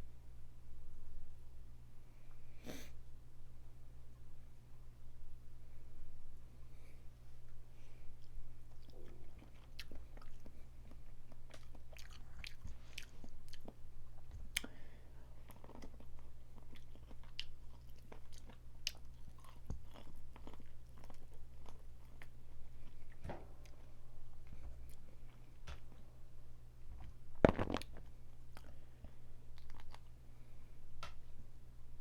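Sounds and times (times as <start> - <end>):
chewing: 8.1 - 26.0, 27.5 - 28.8, 29.5 - 30.2
crawfish shells cracking: 27.4 - 28.7.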